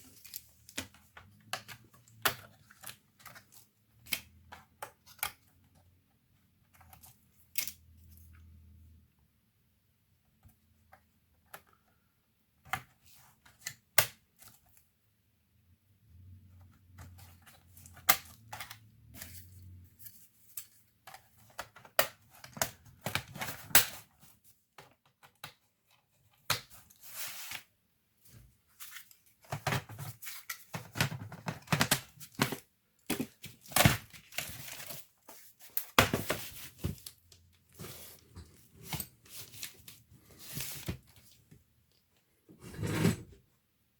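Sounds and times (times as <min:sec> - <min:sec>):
rustling and crinkling: 0:19.1 - 0:42.3.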